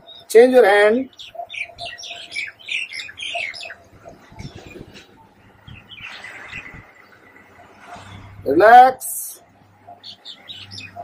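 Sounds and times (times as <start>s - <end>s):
small birds chirping: 0.0s - 8.6s, 9.4s - 11.0s.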